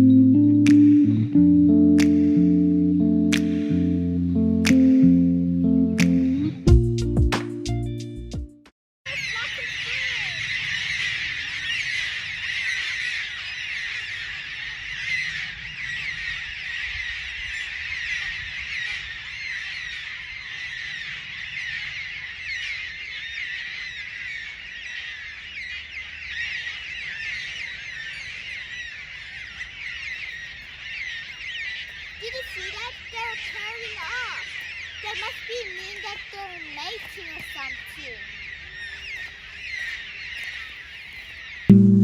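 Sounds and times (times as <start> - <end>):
frogs chirping in chorus: 9.1 - 41.7.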